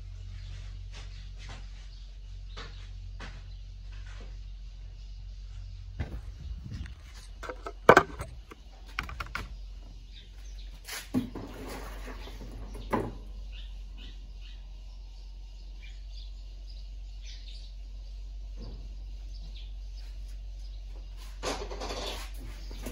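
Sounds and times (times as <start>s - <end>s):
parts knocking and clattering: 6.0s - 9.9s, 11.0s - 13.4s, 21.3s - 22.9s
scrape: 10.8s - 12.4s, 21.2s - 22.7s
faint bird chirps: 12.2s - 21.4s.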